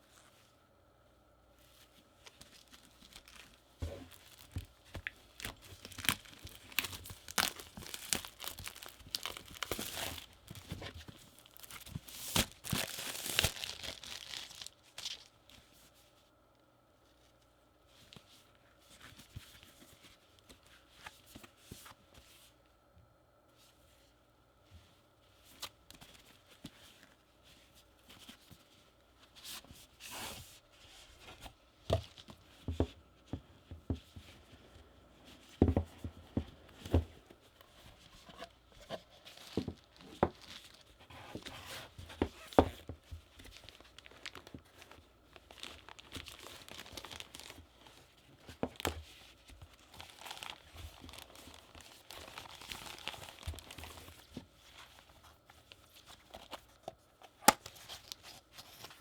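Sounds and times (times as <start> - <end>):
plastic and paper crinkling: 1.6 - 15.7, 35.6 - 59.0.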